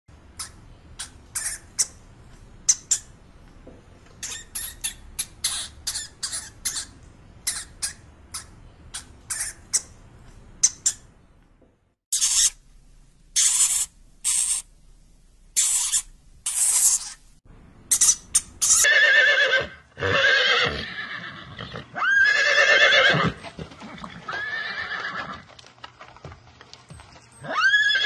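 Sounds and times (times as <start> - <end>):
faint low hum: 0.1 - 18.8
hamster squeaking: 0.4 - 2.0, 4.2 - 9.9, 12.1 - 12.6, 13.4 - 14.7, 15.6 - 17.2, 17.9 - 18.9
hamster squealing: 4.2 - 6.9, 12.1 - 12.6, 13.4 - 14.7, 15.6 - 17.2, 17.9 - 18.9.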